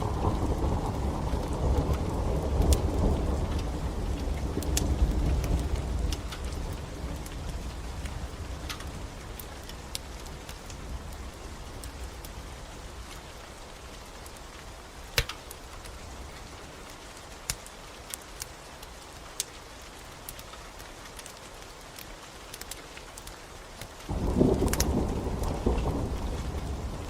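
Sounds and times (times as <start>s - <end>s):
thunder rumble: 0.0s - 13.2s, 24.1s - 27.0s
rain hissing: 0.0s - 27.0s
wood fire crackling: 0.0s - 27.0s.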